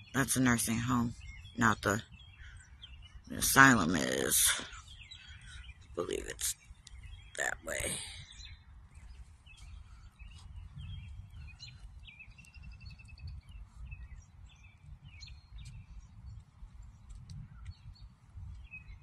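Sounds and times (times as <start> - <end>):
songbirds chirping: 0.0 - 19.0
steady low rumble: 4.6 - 19.0.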